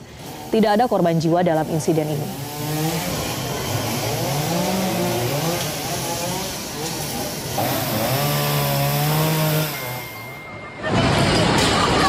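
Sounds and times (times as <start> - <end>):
chainsaw cutting tree trunk: 2.1 - 10.2.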